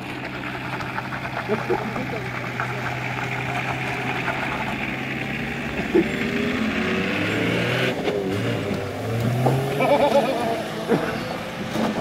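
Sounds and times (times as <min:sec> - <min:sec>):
car engine idling and revving: 0:00.0 - 0:12.0.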